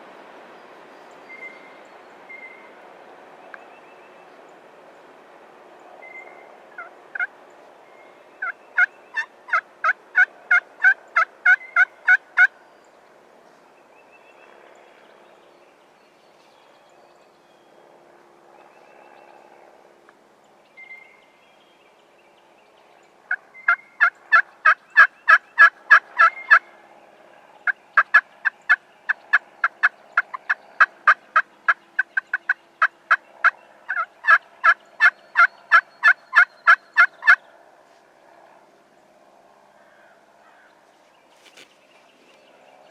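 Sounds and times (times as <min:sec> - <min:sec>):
turkey yelping: 0:08.4 - 0:12.5, 0:23.3 - 0:26.6, 0:28.0 - 0:37.4.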